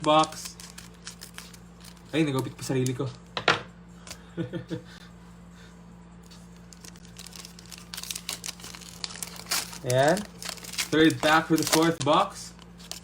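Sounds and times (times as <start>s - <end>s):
foil pack crinkling and tearing: 0.0s - 3.0s, 6.5s - 13.0s.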